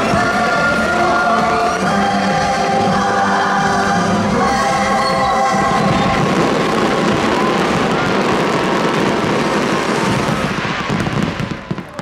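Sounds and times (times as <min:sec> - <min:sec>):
fireworks exploding and crackling: 0:00.0 - 0:03.0, 0:05.2 - 0:12.0.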